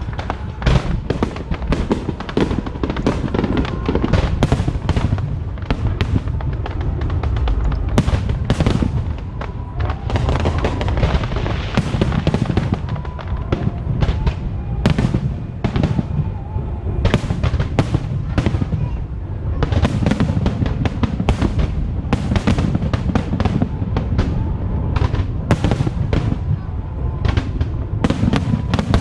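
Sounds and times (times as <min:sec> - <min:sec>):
fireworks bangs and crackles: 0:00.0 - 0:29.0
low rumble: 0:00.0 - 0:29.0.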